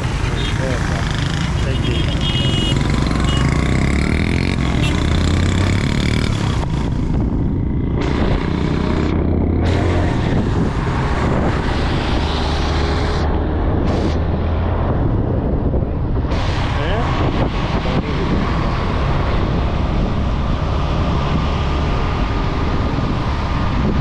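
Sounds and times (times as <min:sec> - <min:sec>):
motorcycle engine running: 0:00.0 - 0:10.2
wind and road noise: 0:00.0 - 0:24.0.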